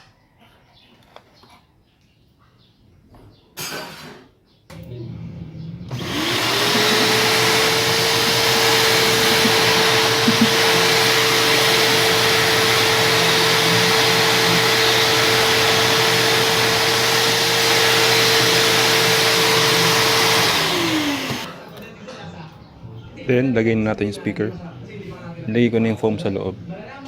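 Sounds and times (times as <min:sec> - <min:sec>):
electric blower motor running: 0:04.7 - 0:21.6.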